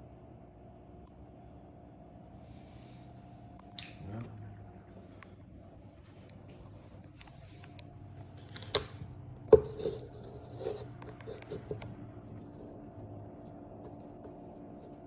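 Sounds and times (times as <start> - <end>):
steady low hum: 0.0 - 15.0
hard objects knocking and clicking: 9.5 - 12.0.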